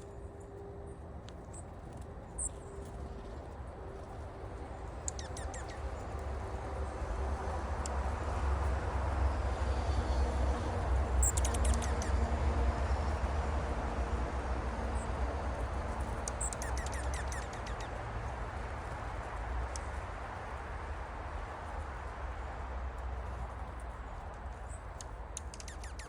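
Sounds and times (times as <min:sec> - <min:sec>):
small birds chirping and twittering: 0:04.6 - 0:08.2, 0:09.8 - 0:13.3, 0:14.8 - 0:20.6, 0:23.6 - 0:26.0.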